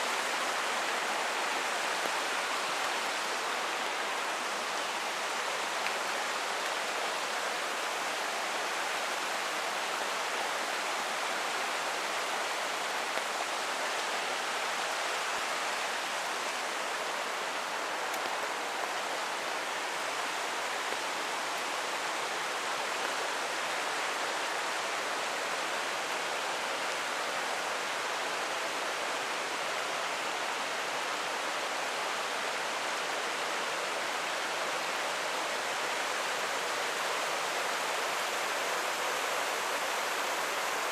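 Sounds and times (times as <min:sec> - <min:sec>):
creek flowing: 0:00.0 - 0:40.9.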